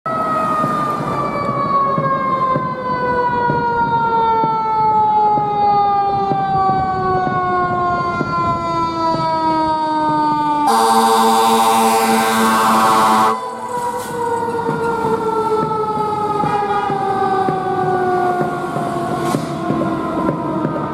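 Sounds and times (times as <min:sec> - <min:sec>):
fire engine siren winding down: 0:00.1 - 0:20.9
air horn blast: 0:10.6 - 0:14.2, 0:16.4 - 0:17.0.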